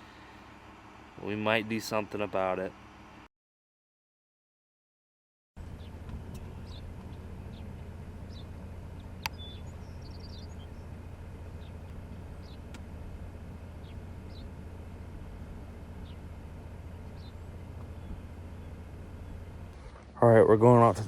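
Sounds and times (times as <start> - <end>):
small birds chirping: 5.6 - 19.8
low rumble: 5.6 - 21.0.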